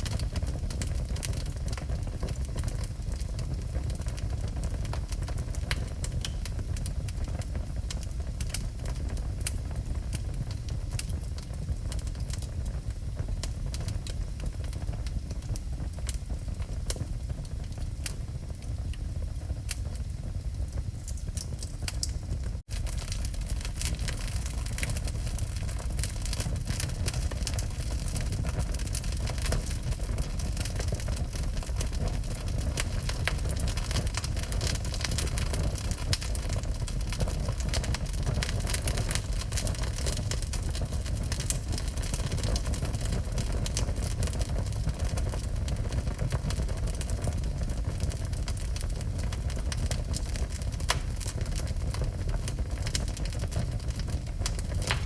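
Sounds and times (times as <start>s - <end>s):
burning wood crackling: 0.0s - 55.0s
fire roaring in fireplace: 0.0s - 55.0s.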